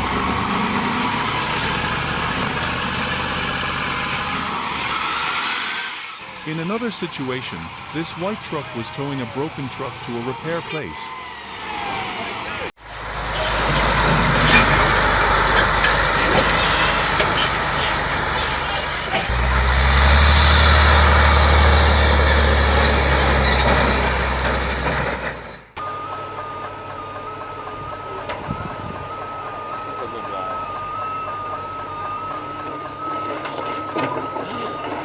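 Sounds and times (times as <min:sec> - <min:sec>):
heavy truck engine rumbling: 0:00.0 - 0:35.0
high-pitched electronic tone: 0:06.5 - 0:12.2.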